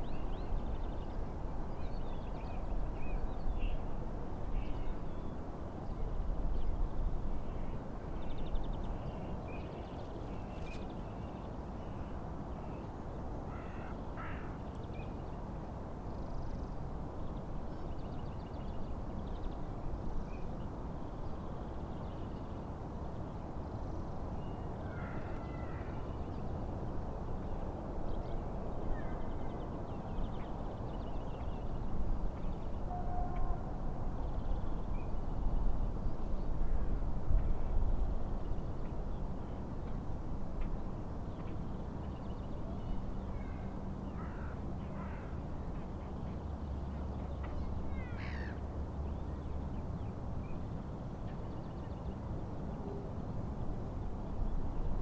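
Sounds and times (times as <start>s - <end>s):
wind: 0.0s - 55.0s
wind rumble on microphone: 26.2s - 41.1s.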